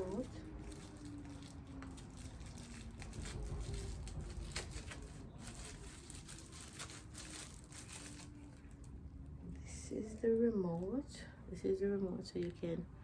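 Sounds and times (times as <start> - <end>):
packaging rustling: 0.0 - 9.0.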